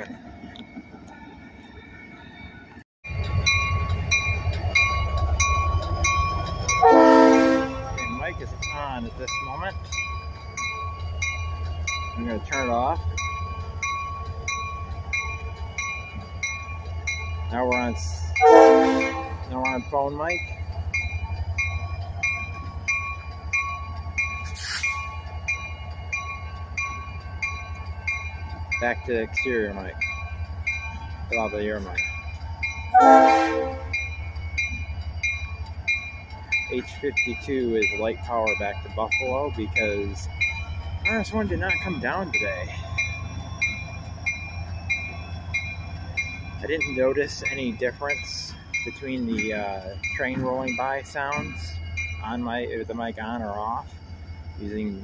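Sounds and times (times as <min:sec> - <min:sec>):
locomotive bell ringing: 0:00.0 - 0:55.0
locomotive engine rumble: 0:00.0 - 0:55.0
short hiss: 0:24.4 - 0:25.0.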